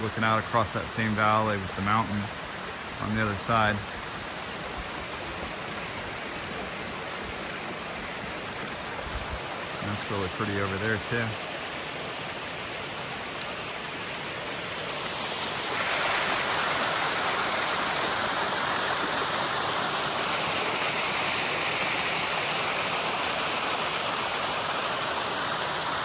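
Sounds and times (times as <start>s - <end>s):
water rushing down waterfall: 0.0s - 26.0s.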